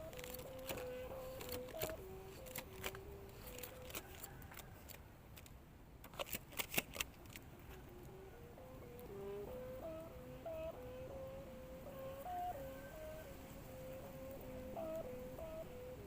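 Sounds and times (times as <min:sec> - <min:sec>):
kite hummer humming: 0:00.0 - 0:05.0, 0:07.1 - 0:16.0
sharp clicks: 0:00.0 - 0:08.2.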